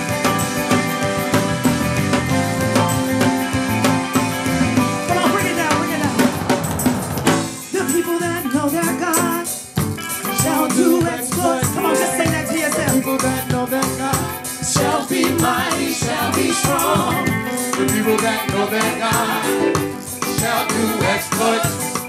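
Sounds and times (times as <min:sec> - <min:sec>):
gospel band drums and percussion: 0:00.0 - 0:22.0
wavering melodic line: 0:11.8 - 0:13.6.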